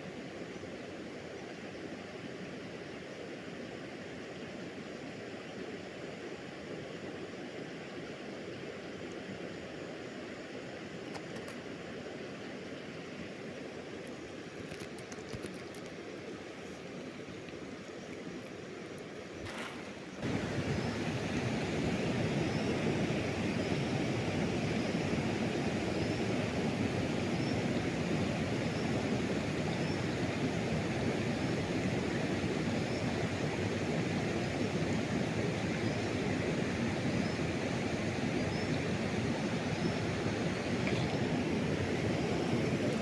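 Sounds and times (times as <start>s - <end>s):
river water rushing: 19.1s - 43.0s.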